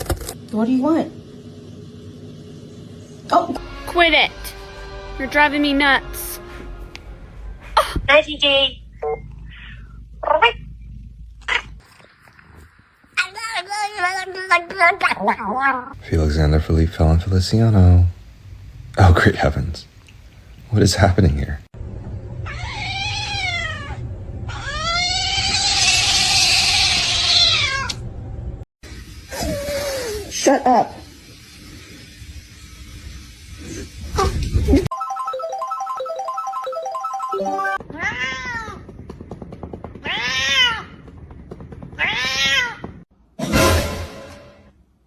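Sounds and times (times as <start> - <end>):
cat yowling meows: 22.4 - 28.0.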